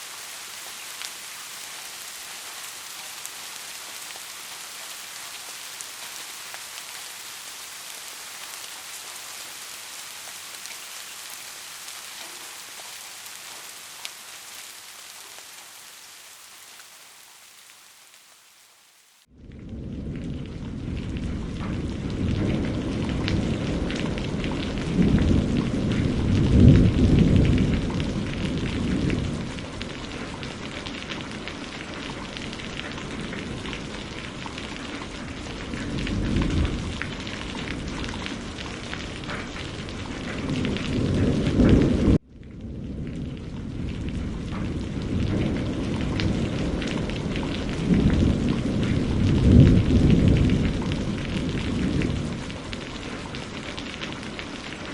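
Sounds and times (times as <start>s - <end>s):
heavy rain: 0.0s - 54.9s
rolling thunder: 19.3s - 30.5s, 35.3s - 53.4s.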